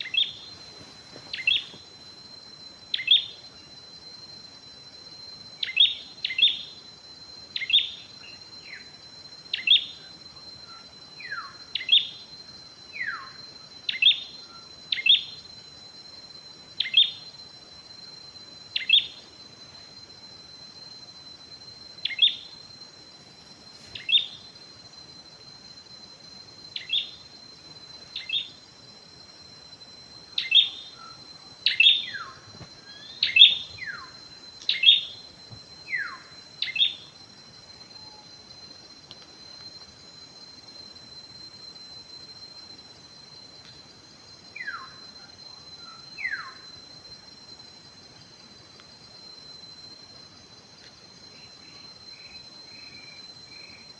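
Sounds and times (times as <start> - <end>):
high insect drone: 0.0 - 53.9
bird falling whistles: 0.2 - 1.8, 31.7 - 34.1.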